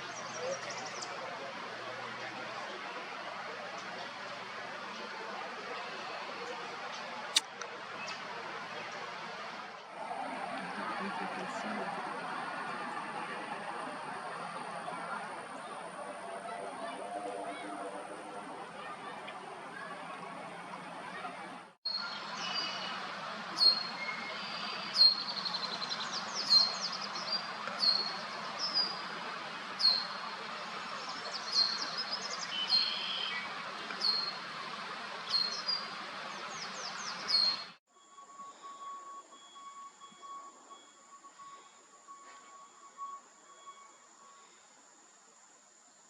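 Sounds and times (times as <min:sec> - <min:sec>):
steady outdoor noise: 0:00.0 - 0:46.0.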